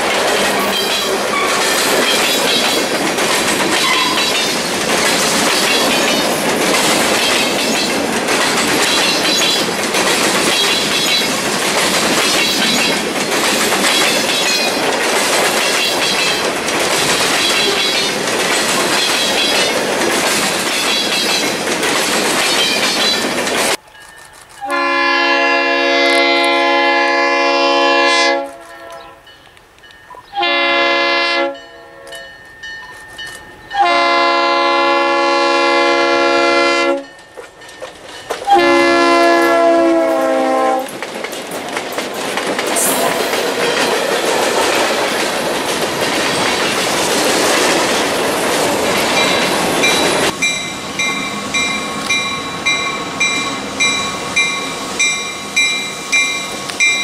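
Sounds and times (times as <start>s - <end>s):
train wheels clattering on rails: 0.0s - 24.6s, 36.9s - 57.0s
locomotive air horn blast: 24.6s - 29.2s, 30.4s - 32.1s, 33.8s - 37.1s, 38.5s - 40.9s.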